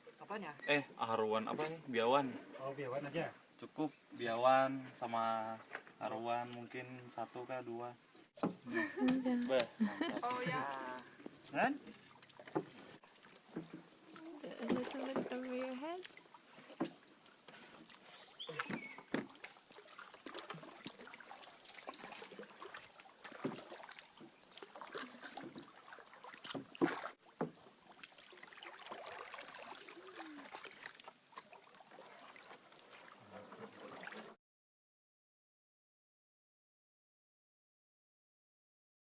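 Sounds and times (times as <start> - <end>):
light water splashing: 8.2 - 34.4
wooden knocks and clicks: 8.4 - 8.6, 12.4 - 12.8.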